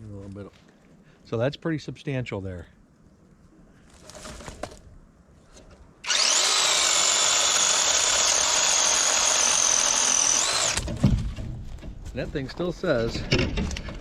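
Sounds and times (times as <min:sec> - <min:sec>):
chain cutting wood: 0:06.0 - 0:10.9
chainsaw whining: 0:06.0 - 0:10.9.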